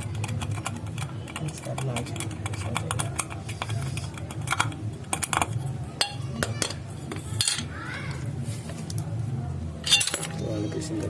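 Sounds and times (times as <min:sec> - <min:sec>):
metal parts clicking and tapping: 0:00.0 - 0:07.7, 0:09.8 - 0:10.4.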